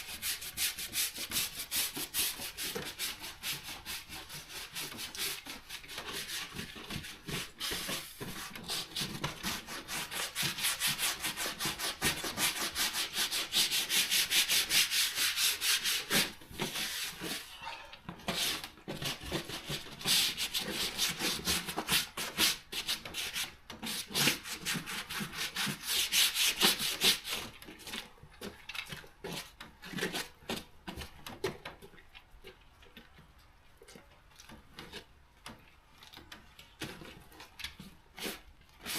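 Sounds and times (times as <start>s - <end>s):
rubbing strokes on a surface: 0.0s - 27.5s.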